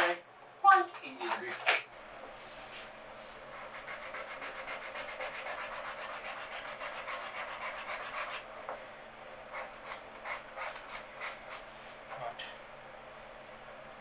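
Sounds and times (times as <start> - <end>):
sandpaper rubbing on wood: 3.6 - 8.4, 9.5 - 11.6.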